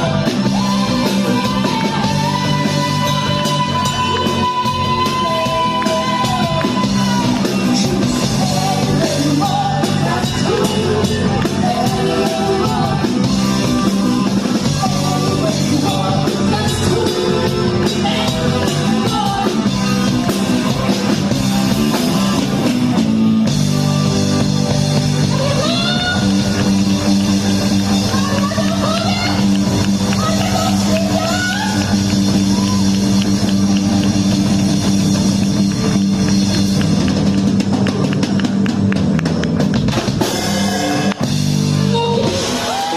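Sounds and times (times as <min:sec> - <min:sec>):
person singing: 0:00.0 - 0:13.9, 0:14.5 - 0:20.0, 0:25.2 - 0:26.6
drums: 0:00.0 - 0:42.9
electric guitar: 0:00.0 - 0:42.9.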